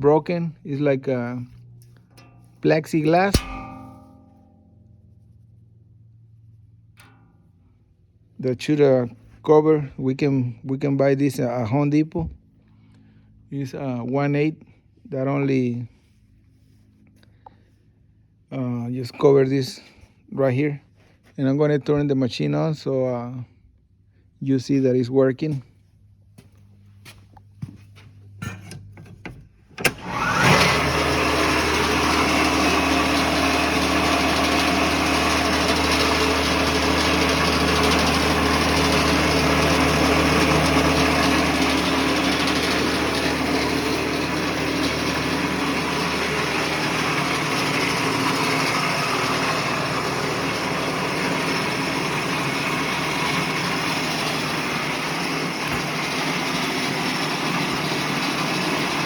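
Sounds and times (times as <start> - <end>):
sawmill edger humming and whirring: 2.7 - 4.1, 29.8 - 59.0.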